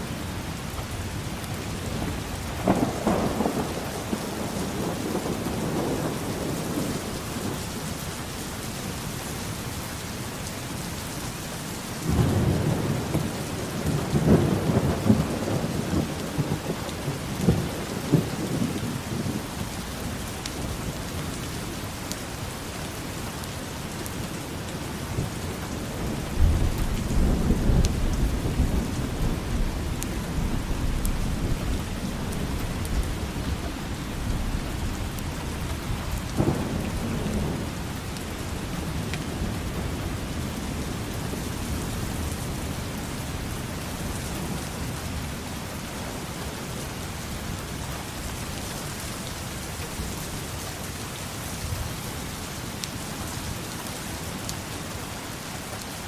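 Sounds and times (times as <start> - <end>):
steady rain falling: 0.0 - 56.0
thunder rumbling: 1.9 - 7.6, 12.0 - 21.0, 24.6 - 45.4.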